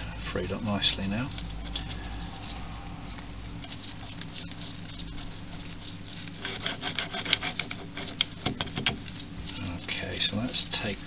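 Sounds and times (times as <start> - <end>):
steady low hum: 0.0 - 11.0
lathe slide scratchy rubbing: 3.7 - 8.2.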